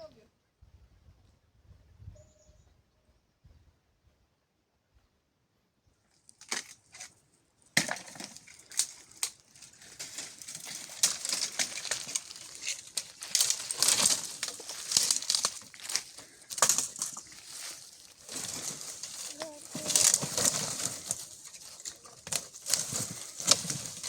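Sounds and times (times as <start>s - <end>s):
twigs cracking and snapping: 6.1s - 7.1s, 7.7s - 24.0s.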